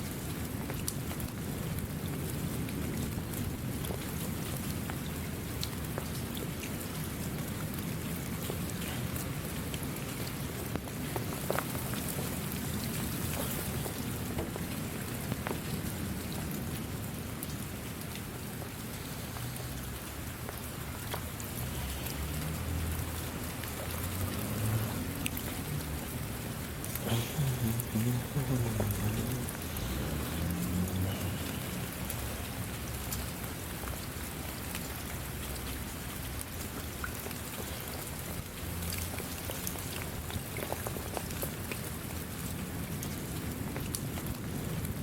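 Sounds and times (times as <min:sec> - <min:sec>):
raindrops ticking: 0:00.0 - 0:45.0
steady rain falling: 0:00.0 - 0:45.0.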